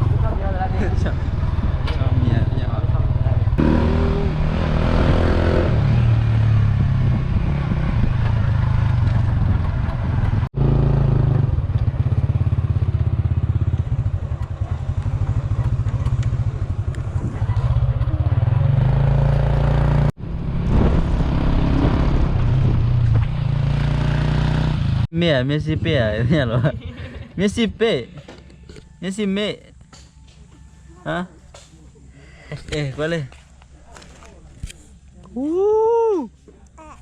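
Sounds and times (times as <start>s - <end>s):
motorcycle engine rumble: 0.0s - 25.1s.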